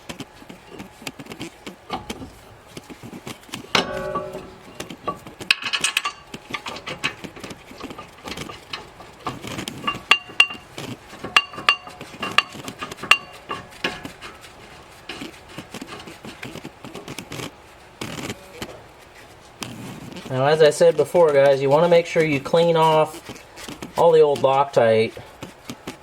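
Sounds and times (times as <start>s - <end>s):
metallic clinks of tools and bolts: 3.7s - 15.3s.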